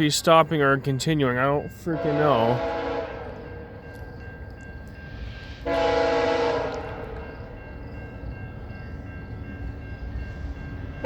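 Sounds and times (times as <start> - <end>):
low rumble of train: 0.0 - 11.0
multi-tone train horn: 1.9 - 3.8, 5.2 - 7.6.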